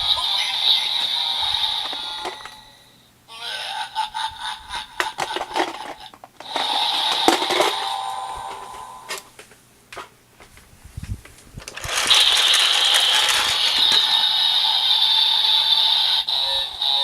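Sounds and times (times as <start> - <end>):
toy electronic sound effect: 0.0 - 2.9, 6.4 - 9.1, 11.8 - 17.0
plastic clicks: 5.0 - 7.9, 11.6 - 14.3.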